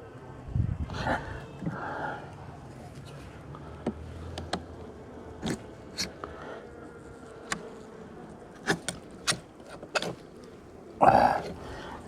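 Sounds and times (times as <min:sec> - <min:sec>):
hive parts clicking and knocking: 0:08.6 - 0:11.7.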